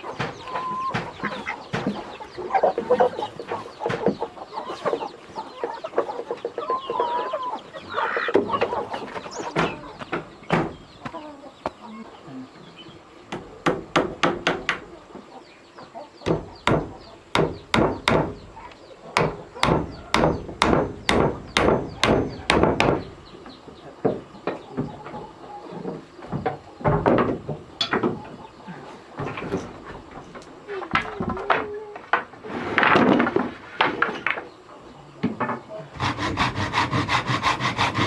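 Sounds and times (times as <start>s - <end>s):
chickens clucking: 0.0s - 38.0s
sharp hammering strikes: 16.3s - 18.5s, 19.2s - 23.0s.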